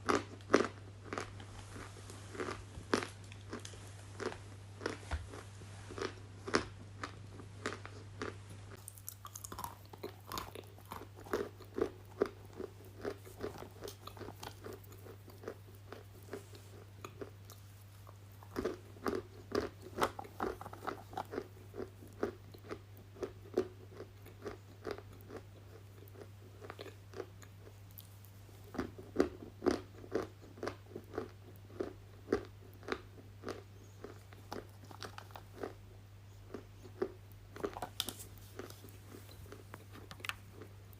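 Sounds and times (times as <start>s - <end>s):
chewing crunchy food: 0.0s - 40.9s
faint low hum: 0.0s - 40.9s.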